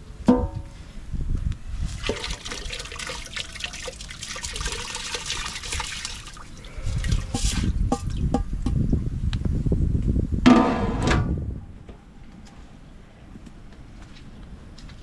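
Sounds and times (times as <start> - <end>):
water trickling and splashing: 1.8 - 8.4
low rumble: 6.8 - 12.1.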